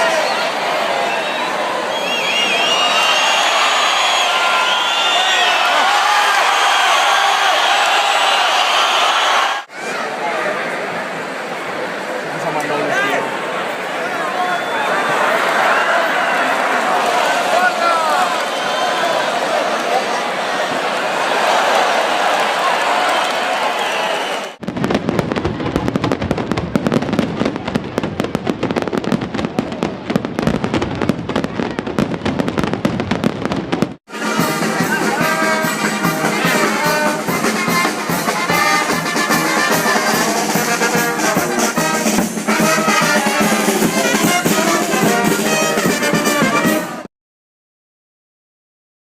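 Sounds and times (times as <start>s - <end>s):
fireworks crackling and banging: 24.6s - 46.8s
brass band playing: 34.1s - 47.1s.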